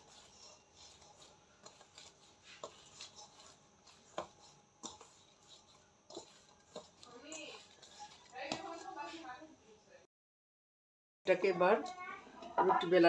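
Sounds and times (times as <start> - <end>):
hands kneading dough: 0.0 - 9.4.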